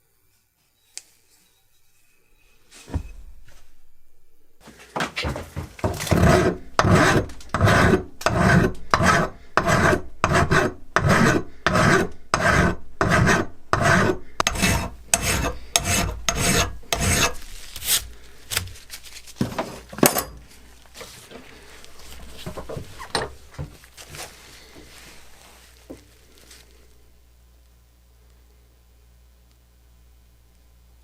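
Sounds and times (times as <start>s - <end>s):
hand filing strokes: 5.8s - 18.2s.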